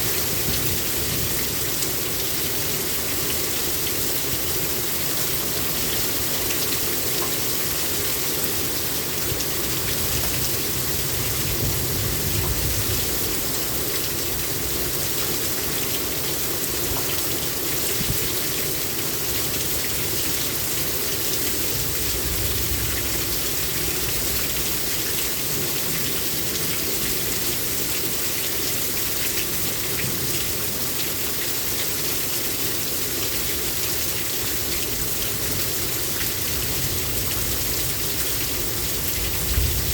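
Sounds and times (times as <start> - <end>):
heavy rain pouring: 0.0 - 39.9
low rumble of thunder: 10.9 - 13.4, 36.6 - 39.9.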